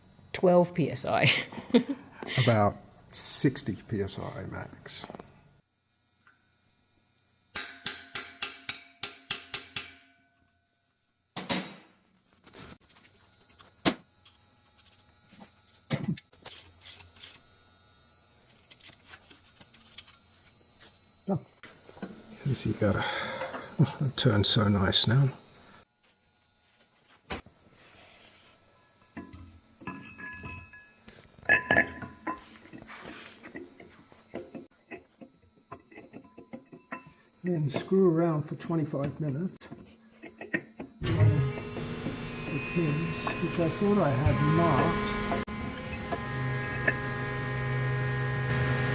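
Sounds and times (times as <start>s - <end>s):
metal-on-metal tapping: 7.6s - 10.3s
metal parts and tools clinking: 7.6s - 10.4s, 15.6s - 17.5s, 18.5s - 20.2s, 29.0s - 33.9s
tools and parts clunking: 11.4s - 12.0s, 29.0s - 38.0s, 39.0s - 41.0s.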